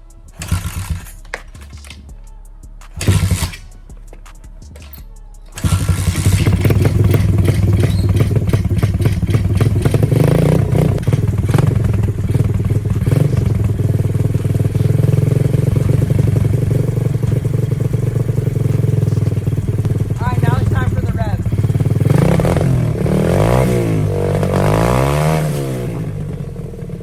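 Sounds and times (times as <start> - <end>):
dirt bike idling loudly: 0.0 - 1.2, 3.0 - 3.8, 5.5 - 27.0.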